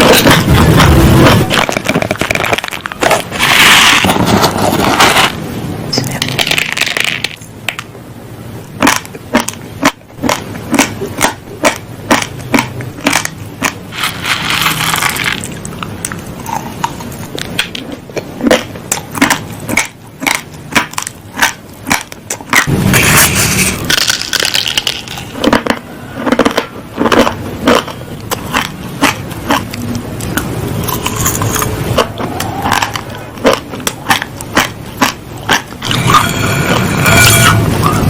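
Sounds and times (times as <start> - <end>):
rice grains being chewed: 8.8 - 22.7, 23.9 - 37.5.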